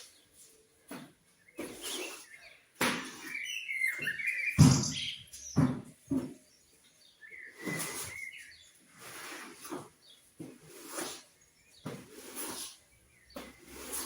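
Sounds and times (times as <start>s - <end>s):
small birds chirping: 0.0s - 14.0s
rustling or knocking noises: 4.6s - 6.5s, 7.5s - 14.0s.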